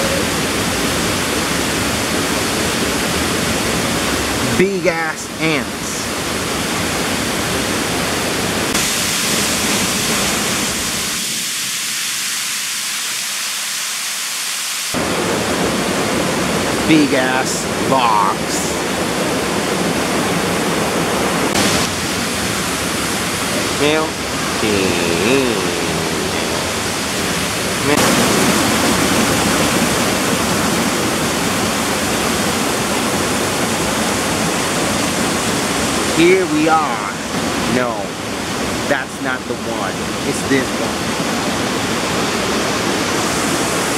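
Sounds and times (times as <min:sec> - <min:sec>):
rushing water hiss: 0:00.0 - 0:43.9.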